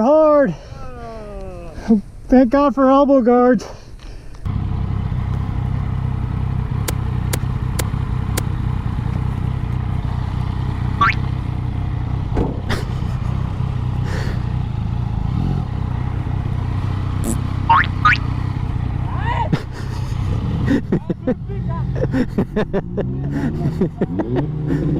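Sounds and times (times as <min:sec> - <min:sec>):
motorcycle engine running: 0:04.5 - 0:24.0.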